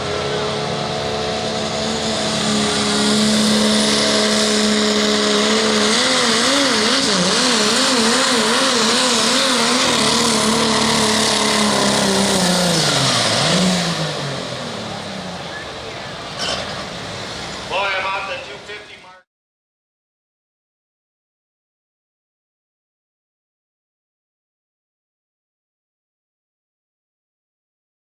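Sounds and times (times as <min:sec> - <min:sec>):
diesel truck engine running hard: 0:00.0 - 0:19.2.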